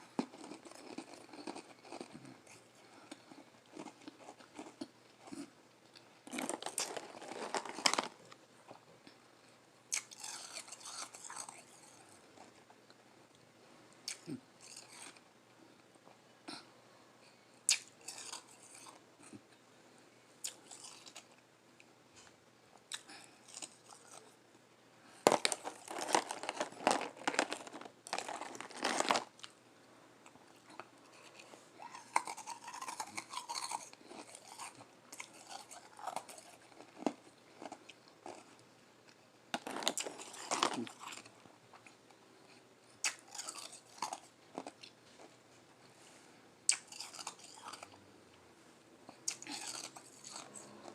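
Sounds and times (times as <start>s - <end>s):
chewing and crunching ice: 0.0s - 8.8s, 9.9s - 12.6s, 14.1s - 15.2s, 17.7s - 19.4s, 20.4s - 21.4s, 22.9s - 24.3s, 25.2s - 29.5s, 30.3s - 38.6s, 39.6s - 45.3s, 46.7s - 48.0s, 49.2s - 50.8s.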